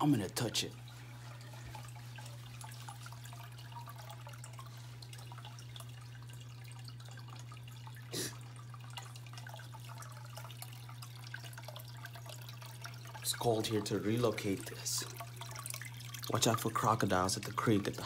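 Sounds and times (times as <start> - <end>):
creek water trickling: 0.2 - 18.0.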